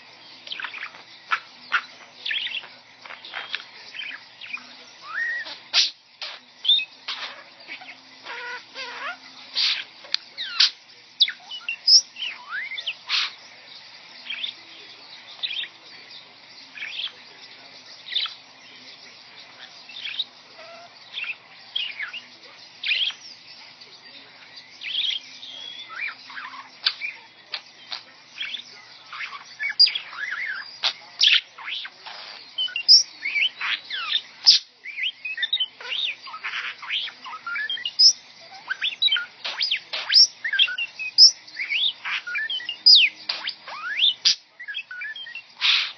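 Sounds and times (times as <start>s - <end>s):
pet bird chirping and whistling: 3.4s - 5.9s, 10.4s - 13.3s, 28.4s - 45.9s.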